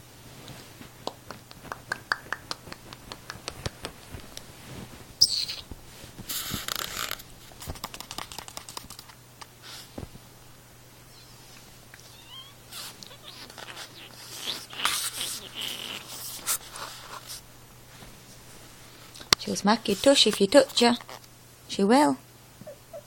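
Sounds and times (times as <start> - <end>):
claws scratching and tapping: 6.6 - 9.5.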